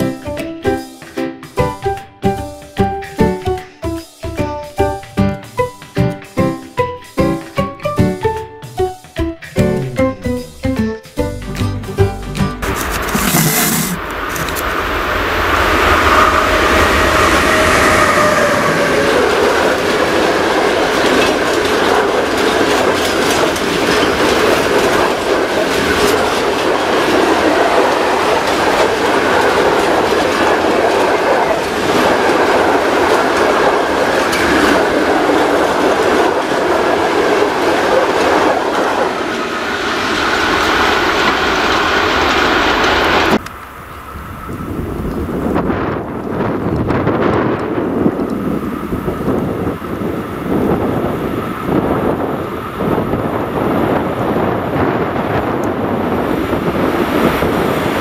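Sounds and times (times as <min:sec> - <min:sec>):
freight train wheels rumbling: 0:00.0 - 0:58.0
falling whine: 0:12.7 - 0:21.4.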